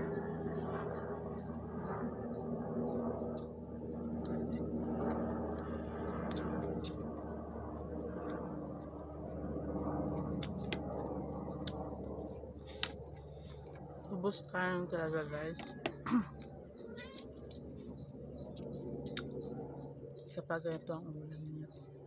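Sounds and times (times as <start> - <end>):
steady low hum: 0.0 - 22.0
chewing and wet squishing: 2.9 - 9.0, 10.1 - 12.8, 18.4 - 19.6.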